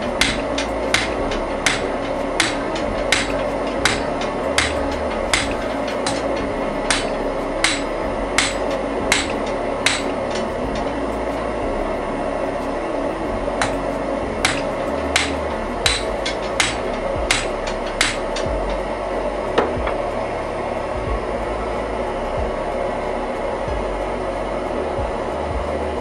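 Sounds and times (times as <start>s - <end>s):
hammer striking iron on anvil: 0.0s - 10.9s, 13.6s - 18.7s
rushing background noise: 0.0s - 26.0s.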